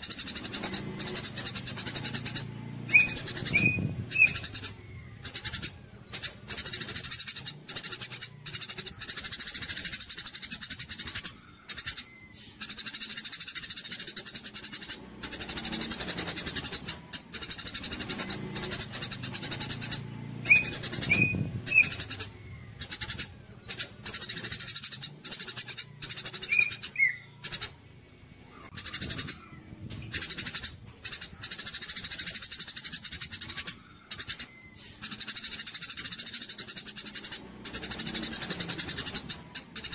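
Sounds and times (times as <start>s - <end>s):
short bird chirps: 0.0s - 39.9s
songbird buzzing trills: 0.0s - 39.9s.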